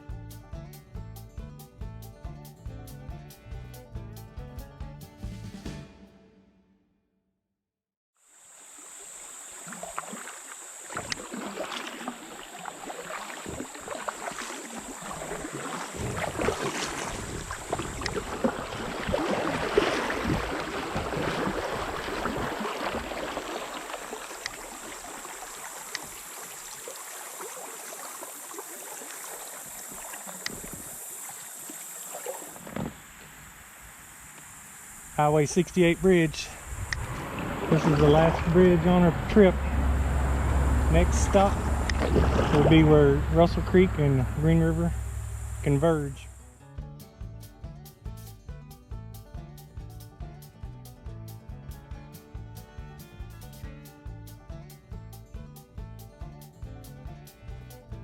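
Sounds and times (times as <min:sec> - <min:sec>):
water splashing around kayak: 0:08.5 - 0:46.6
high-pitched hum: 0:34.6 - 0:46.5.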